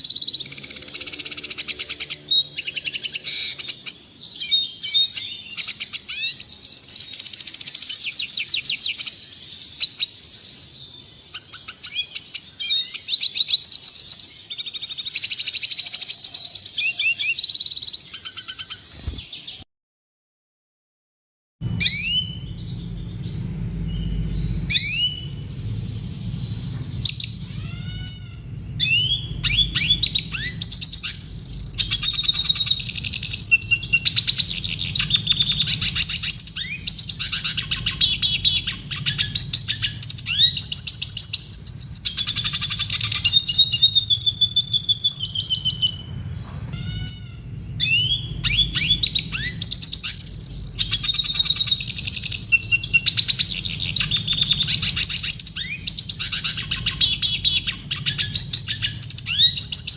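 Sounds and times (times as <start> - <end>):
bird singing twittering song: 0.0 - 19.7, 21.6 - 59.9
steady low hum: 21.6 - 59.9.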